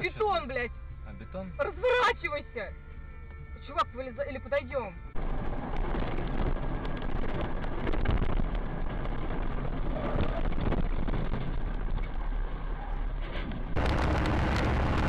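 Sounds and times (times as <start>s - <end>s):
car engine and tyre noise: 5.1s - 15.0s.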